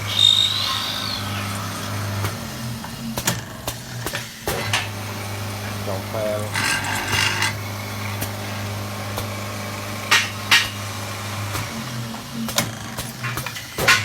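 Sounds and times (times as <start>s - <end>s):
wood lathe motor hum: 0.0s - 4.0s, 4.6s - 12.4s.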